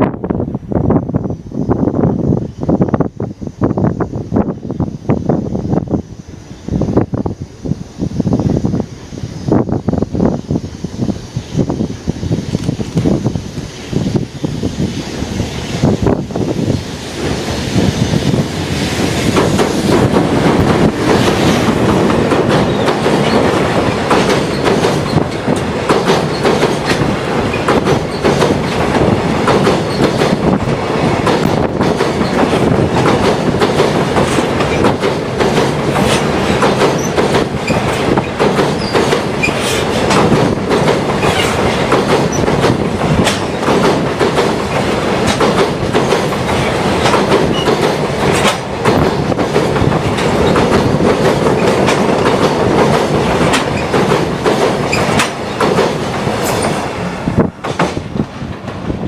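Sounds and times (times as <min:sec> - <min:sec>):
train rumbling over bridge: 0:00.0 - 0:59.0
wheels clickety-clack on rail joints: 0:09.6 - 0:59.0
wheel squeal: 0:37.0 - 0:39.8.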